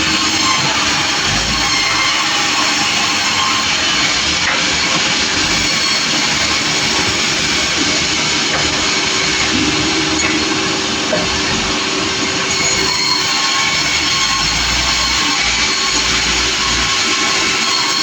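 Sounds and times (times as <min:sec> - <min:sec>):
sawmill machine running: 0:00.0 - 0:18.0.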